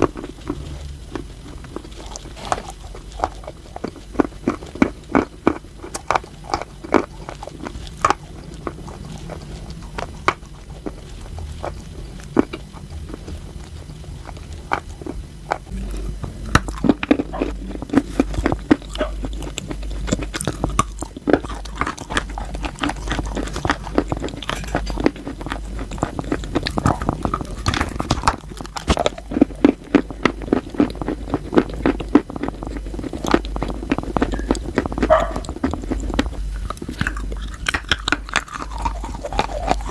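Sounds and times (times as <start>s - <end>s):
chalk crunching and chewing: 0.0s - 39.9s.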